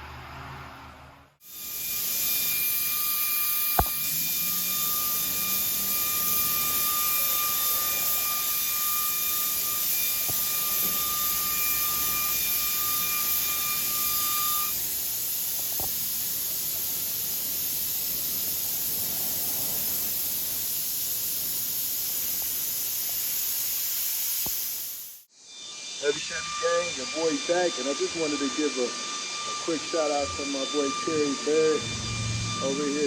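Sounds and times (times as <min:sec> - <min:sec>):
thin whistle: 0:01.6 - 0:14.8, 0:25.6 - 0:33.0
paint spray gun hissing: 0:14.7 - 0:25.3.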